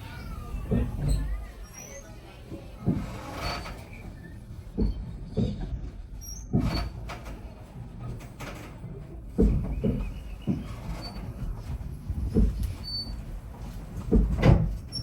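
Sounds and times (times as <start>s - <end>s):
railway carriage rumbling: 0.0s - 15.0s
carriage clunks and knocks: 14.0s - 15.0s.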